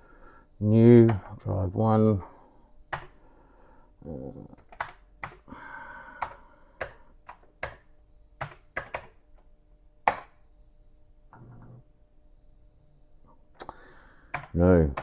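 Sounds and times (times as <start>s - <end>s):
keyboard keys clicking: 6.2s - 7.8s, 8.4s - 9.2s.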